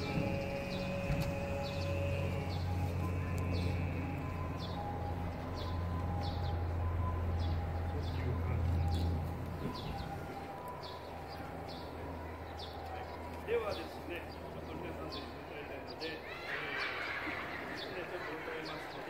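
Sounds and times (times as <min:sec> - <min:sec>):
steady low hum: 0:00.0 - 0:15.8
murmur of outdoor crowd: 0:00.0 - 0:19.0.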